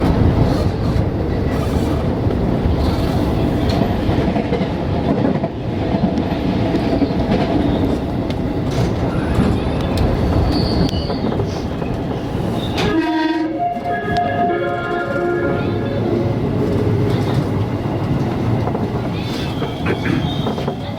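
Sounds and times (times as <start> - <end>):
train music horn melody: 12.8 - 16.3
electric train running: 13.7 - 20.9.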